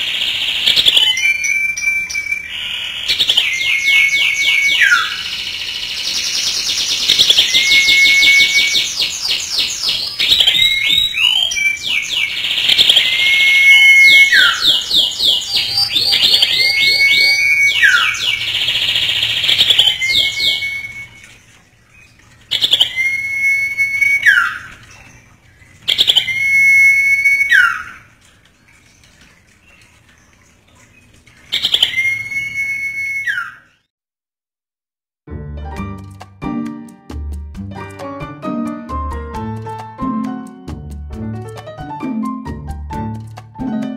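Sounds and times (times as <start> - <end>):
bird whistles with falling note: 3.5 - 5.3, 7.3 - 8.9, 12.9 - 14.7, 15.7 - 18.4, 19.8 - 21.2, 25.9 - 27.9, 31.6 - 33.7
bird chattering trills: 8.6 - 21.2.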